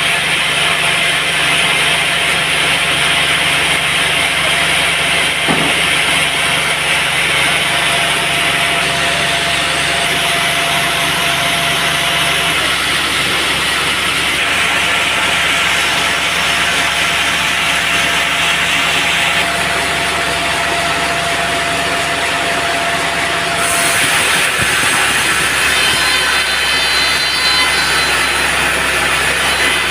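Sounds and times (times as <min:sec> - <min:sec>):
band saw cutting log: 0:00.0 - 0:29.9
thin steady whine: 0:00.0 - 0:29.9.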